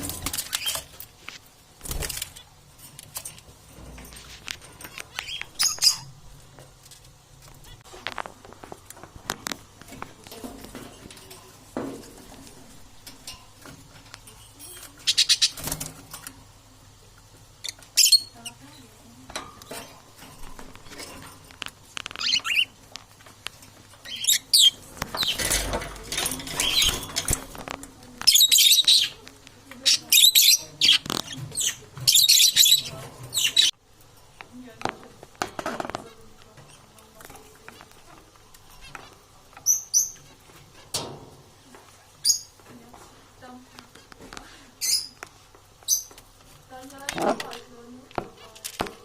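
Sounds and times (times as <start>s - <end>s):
parrots squawking: 5.1s - 6.2s, 15.0s - 15.6s, 22.1s - 22.8s, 24.0s - 25.6s, 28.3s - 29.2s, 29.8s - 33.7s.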